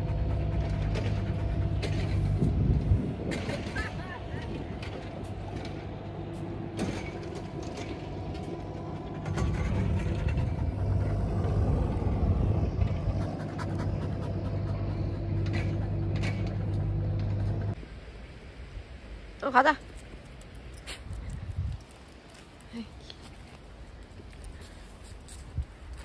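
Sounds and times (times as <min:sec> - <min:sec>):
vehicle engine running: 0:00.0 - 0:17.8.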